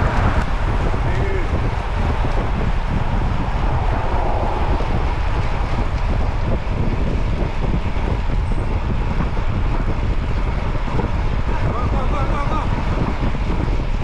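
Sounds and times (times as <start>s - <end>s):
low rumble of movement: 0.0s - 14.0s
wind on microphone: 0.0s - 14.0s.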